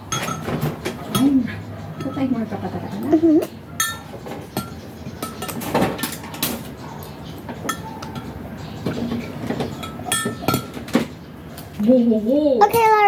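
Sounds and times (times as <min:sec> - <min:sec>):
dishes and utensils clinking: 0:00.0 - 0:03.0, 0:03.8 - 0:11.1.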